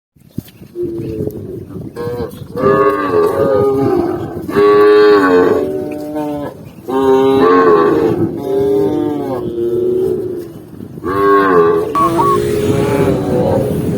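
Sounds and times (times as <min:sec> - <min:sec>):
cows mooing: 0:02.6 - 0:13.7.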